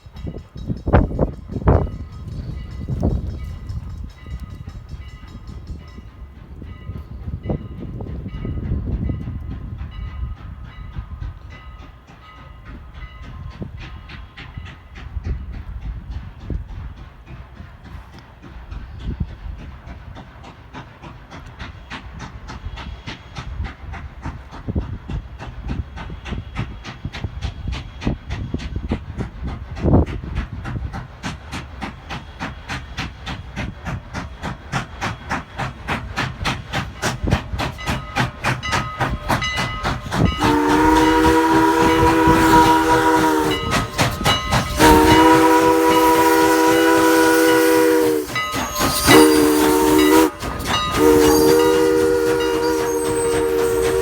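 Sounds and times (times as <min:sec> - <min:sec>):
steam locomotive chuffing: 0:00.0 - 0:54.0
steam whistle blasts: 0:40.2 - 0:54.0.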